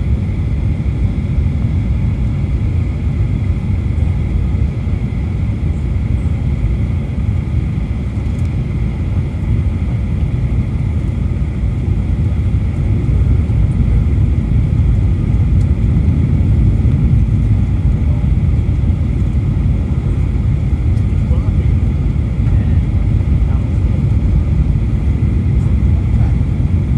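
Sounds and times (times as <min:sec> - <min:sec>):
airliner cabin engine rumble: 0:00.0 - 0:26.9.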